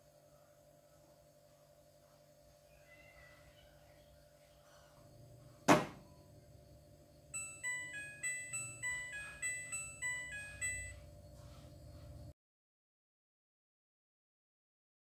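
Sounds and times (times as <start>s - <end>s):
washing machine beeping tune: 7.3s - 12.2s.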